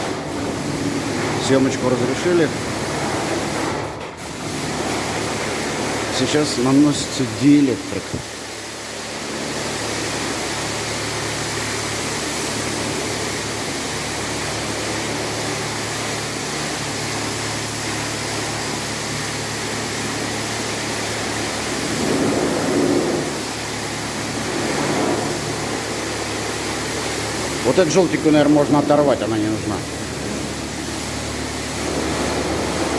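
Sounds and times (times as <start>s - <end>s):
sprayer hissing: 0.0s - 32.9s
low machine hum: 17.8s - 32.9s.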